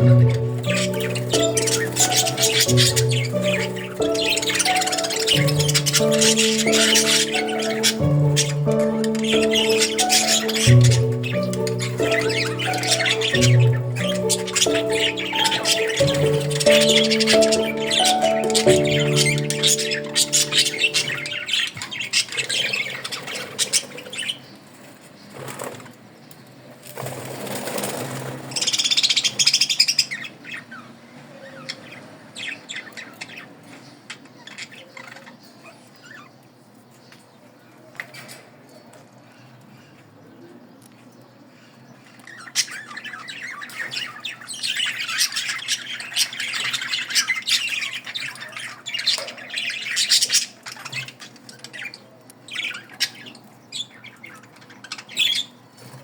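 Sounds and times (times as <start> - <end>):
small birds chirping: 0.0 - 56.0
wings flapping: 26.8 - 28.5.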